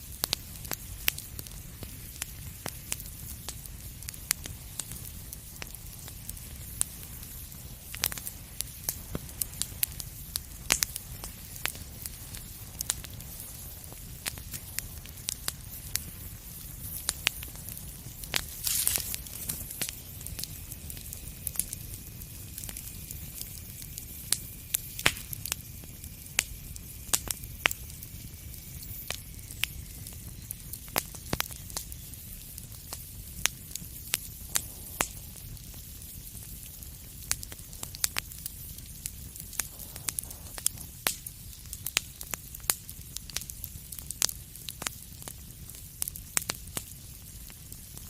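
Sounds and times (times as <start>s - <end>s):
low fire rumble: 0.0s - 48.0s
wood fire crackling: 0.0s - 48.0s.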